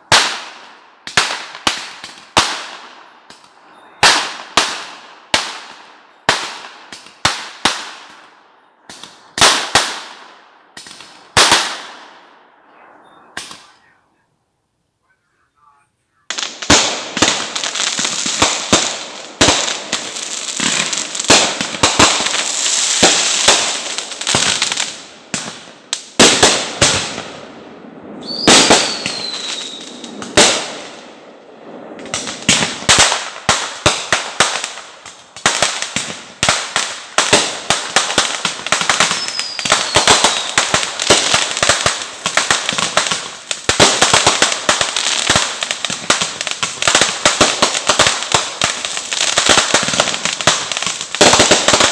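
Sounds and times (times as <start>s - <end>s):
fireworks bangs: 0.0s - 14.2s, 15.3s - 51.9s
fireworks crackling and popping: 0.0s - 14.2s, 15.0s - 51.9s
falling whistle: 28.2s - 30.0s.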